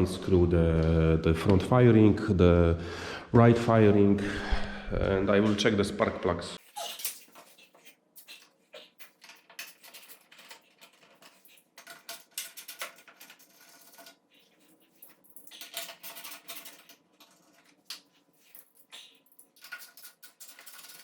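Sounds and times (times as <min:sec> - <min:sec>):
hand tools and screws clinking: 0:06.8 - 0:21.0.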